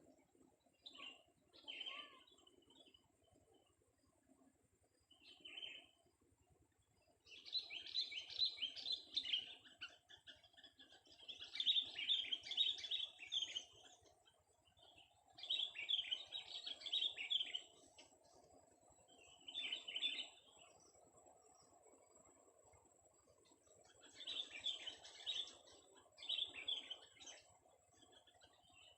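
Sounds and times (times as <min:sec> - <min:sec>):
bird chattering song: 0:00.8 - 0:02.9, 0:07.3 - 0:17.8, 0:23.8 - 0:28.9.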